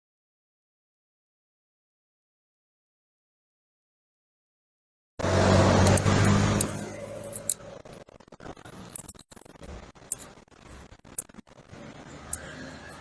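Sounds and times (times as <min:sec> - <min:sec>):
vehicle engine running: 0:05.2 - 0:09.1
light clicks: 0:05.7 - 0:07.7.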